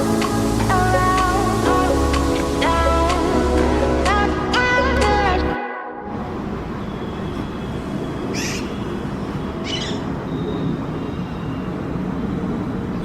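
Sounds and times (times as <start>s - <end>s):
parrot squawks: 8.3s - 8.8s, 9.6s - 10.0s.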